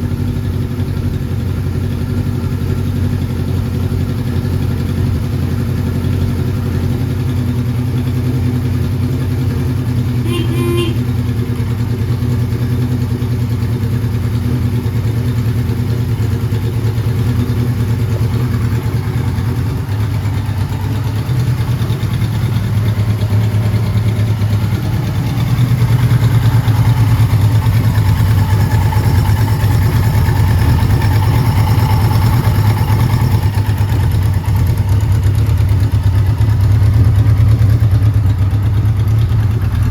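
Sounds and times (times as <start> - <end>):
motorcycle engine running: 0.0 - 39.9
short high-pitched sound: 10.3 - 11.1.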